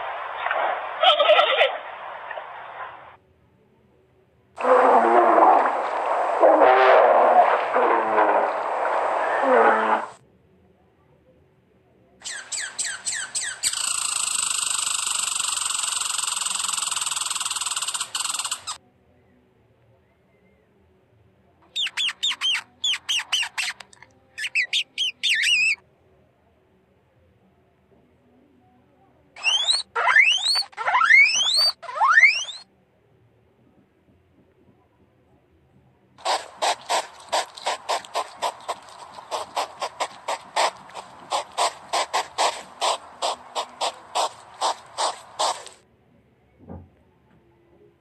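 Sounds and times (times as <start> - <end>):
rat squeaking: 12.2 - 18.8, 21.8 - 23.8, 24.4 - 25.8, 29.4 - 32.6, 36.2 - 45.8
hedgehog huffing: 36.2 - 45.8.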